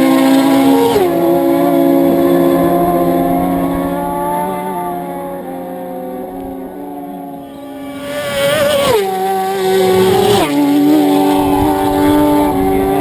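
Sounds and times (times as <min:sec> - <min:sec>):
racing motorcycles passing: 0:00.0 - 0:13.0.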